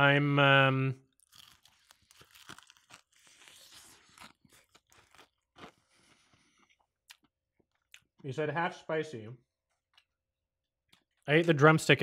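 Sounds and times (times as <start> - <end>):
chewing crispy fried chicken: 1.0 - 8.2.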